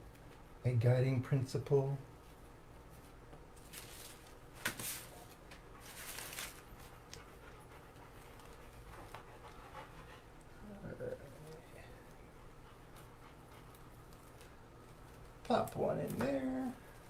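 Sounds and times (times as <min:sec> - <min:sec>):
dog panting: 0:06.8 - 0:14.4.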